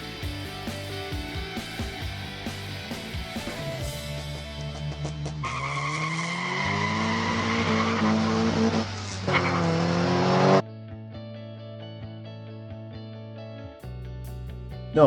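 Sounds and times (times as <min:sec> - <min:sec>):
race car engine revving: 0:04.9 - 0:10.6.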